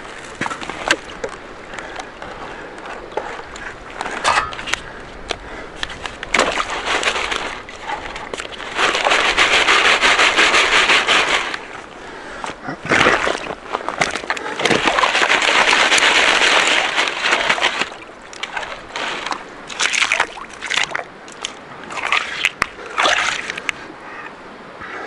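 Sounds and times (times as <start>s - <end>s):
rasping gravel scrape: 5.9s - 11.9s, 12.8s - 19.5s.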